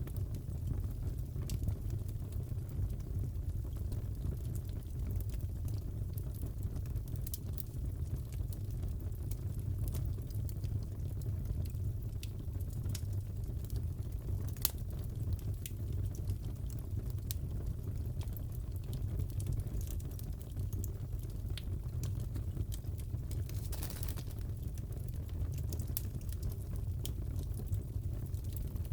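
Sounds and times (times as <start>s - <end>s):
fire popping and snapping: 0.0s - 28.9s
fire roaring: 20.1s - 28.9s.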